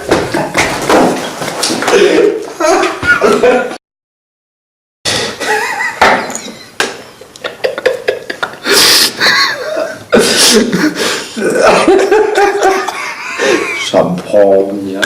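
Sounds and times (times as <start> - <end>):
person gasping and breathing: 8.6 - 11.4.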